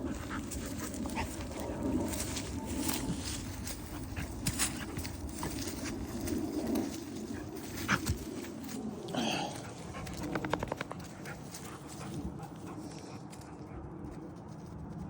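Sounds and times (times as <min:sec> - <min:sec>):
puppy rattling pulses: 0:09.9 - 0:11.8.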